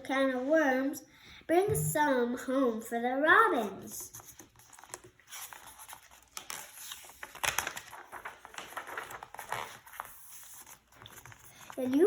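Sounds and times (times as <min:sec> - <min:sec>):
paper rustling and crinkling: 0:04.0 - 0:12.0.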